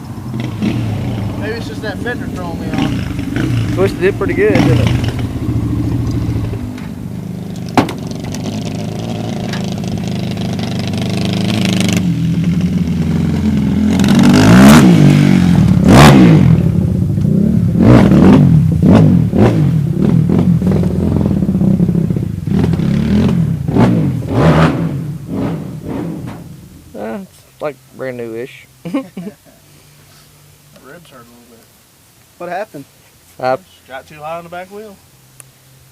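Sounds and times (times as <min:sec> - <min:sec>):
dirt bike engine idling and revving: 0:00.0 - 0:27.8.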